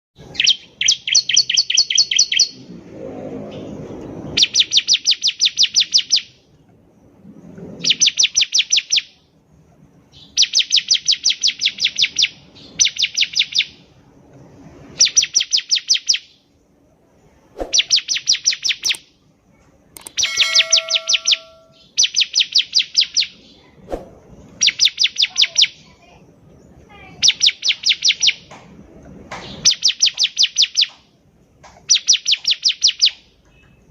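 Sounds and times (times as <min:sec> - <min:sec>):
bird singing high chipping notes: 0:17.7 - 0:19.1, 0:20.0 - 0:23.4.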